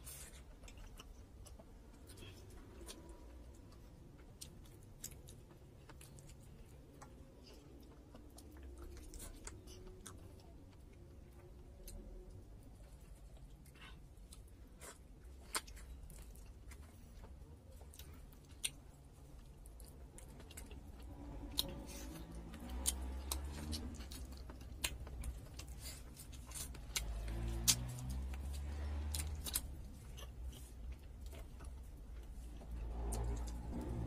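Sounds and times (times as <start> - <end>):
person chewing: 0.0 - 34.0.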